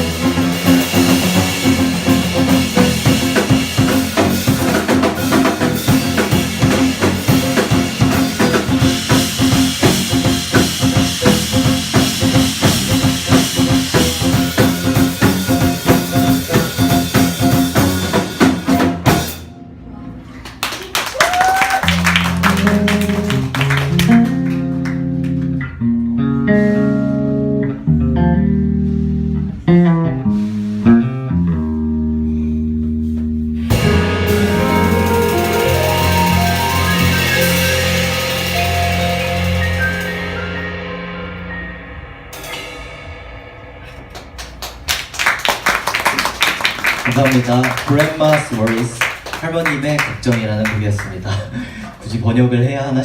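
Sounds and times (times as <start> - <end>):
busy drumming: 0.0 - 19.5, 21.2 - 25.6, 33.6 - 51.4
jazz band playing: 0.0 - 19.8, 21.9 - 50.7
sustained guitar and bass notes: 0.0 - 20.2, 22.0 - 44.9.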